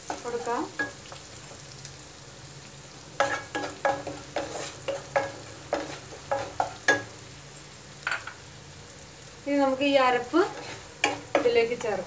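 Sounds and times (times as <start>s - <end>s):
masala sizzling in oil: 0.0s - 12.0s
wooden spatula scraping a pan: 3.2s - 7.1s, 10.2s - 11.8s.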